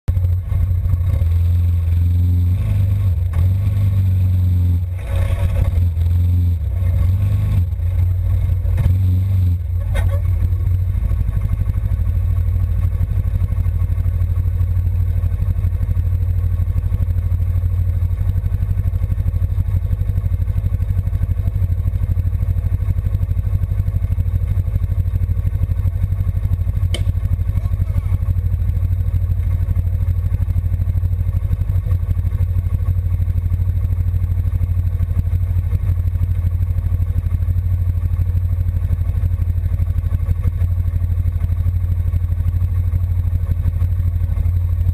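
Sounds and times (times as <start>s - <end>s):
quad bike engine running: 0.1s - 44.9s.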